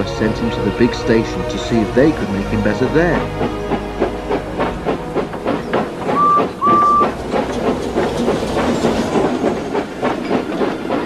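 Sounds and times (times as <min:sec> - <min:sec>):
steam engine puffing: 0:01.9 - 0:10.0
steam engine whistle toots: 0:06.1 - 0:07.2.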